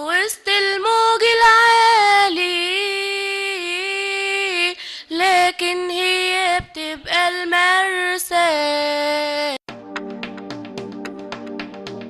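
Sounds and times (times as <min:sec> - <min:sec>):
woman singing unaccompanied: 0:00.0 - 0:09.7.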